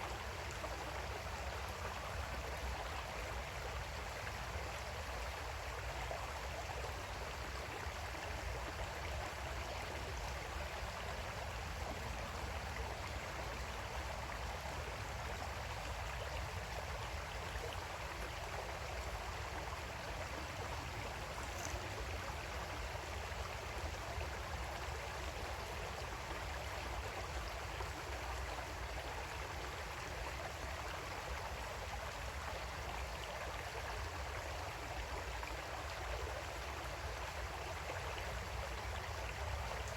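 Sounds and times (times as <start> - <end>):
creek water flowing over rocks: 0.0 - 39.9.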